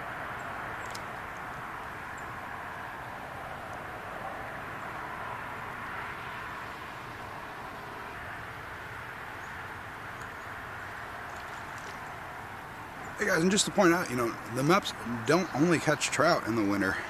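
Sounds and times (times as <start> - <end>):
outdoor background hiss: 0.0 - 17.0
faint clicks: 0.8 - 1.1.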